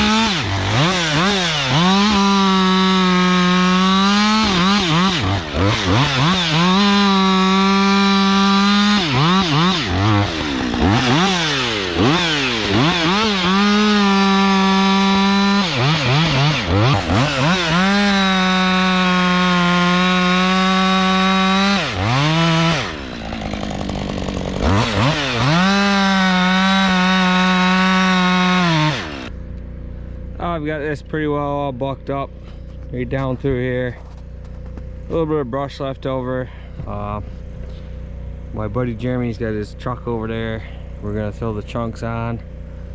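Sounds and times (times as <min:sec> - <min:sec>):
chainsaw cutting wood: 0:00.0 - 0:29.4.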